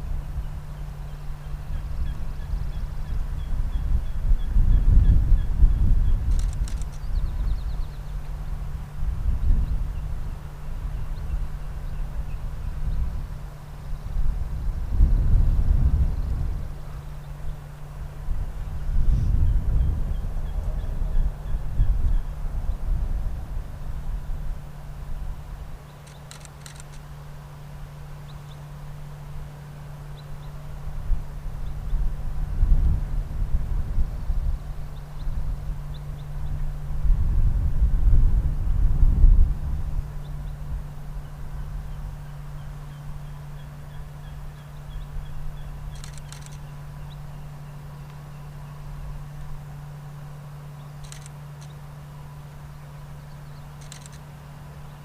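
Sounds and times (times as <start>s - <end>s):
wind buffeting microphone: 0.0s - 26.9s, 30.9s - 42.4s
low hum: 0.0s - 55.0s
sharp clicks: 6.3s - 7.2s, 26.0s - 27.0s, 45.9s - 46.7s, 51.0s - 51.8s, 53.8s - 54.3s.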